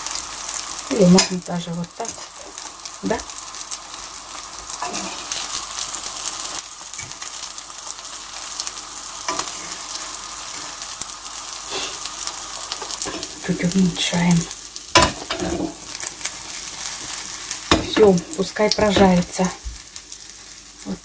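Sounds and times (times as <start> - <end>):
eggplant sizzling in frying pan: 0.0 - 21.0
fork scraping a pan: 4.8 - 5.4, 9.3 - 9.8, 11.7 - 12.1.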